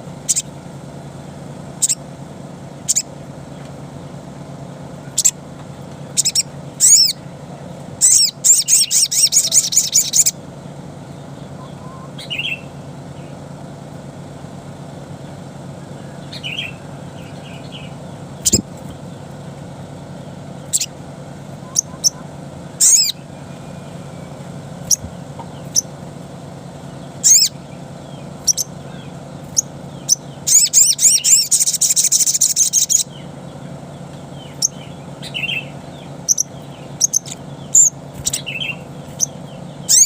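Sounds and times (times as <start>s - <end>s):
low hum: 0.0s - 40.0s
bird chirping: 0.2s - 0.5s, 1.8s - 2.0s, 2.8s - 3.6s, 5.0s - 5.4s, 6.1s - 7.2s, 8.0s - 10.4s, 11.1s - 13.4s, 15.2s - 19.4s, 20.6s - 21.0s, 21.6s - 26.0s, 26.8s - 40.0s
bird rattling trill: 0.2s - 0.5s, 1.8s - 2.0s, 2.8s - 3.1s, 6.1s - 7.2s, 8.0s - 10.4s, 20.6s - 21.0s, 21.7s - 26.0s, 27.1s - 33.1s, 34.4s - 40.0s.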